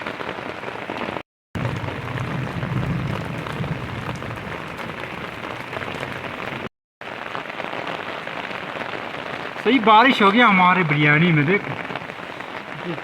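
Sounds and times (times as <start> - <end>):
heavy rain pattering: 0.0 - 13.0
low rumble: 1.6 - 6.6.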